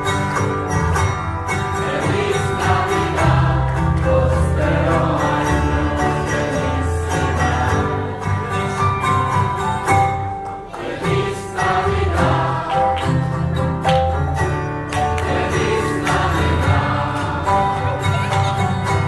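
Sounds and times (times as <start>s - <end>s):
group of voices singing: 1.6s - 9.6s, 10.6s - 13.9s, 15.0s - 18.6s.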